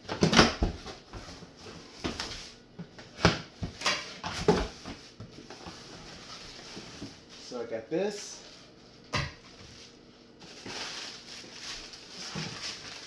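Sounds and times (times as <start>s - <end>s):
cardboard box being unpacked: 10.4s - 13.0s.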